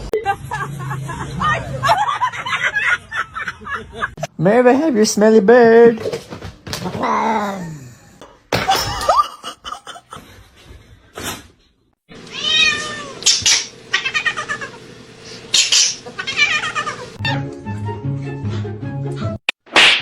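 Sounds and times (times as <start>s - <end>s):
cat meowing and yowling: 12.2s - 13.3s, 16.2s - 17.4s.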